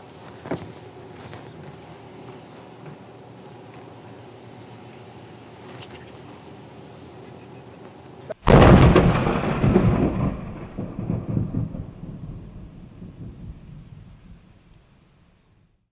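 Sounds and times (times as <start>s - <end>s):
thunder crack and rumble: 8.4s - 14.8s.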